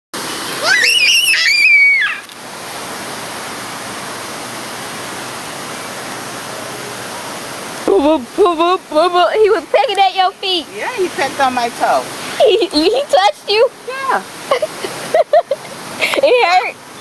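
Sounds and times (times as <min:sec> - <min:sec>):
background hiss: 0:00.2 - 0:17.0
shrill high-pitched cry: 0:00.6 - 0:02.3.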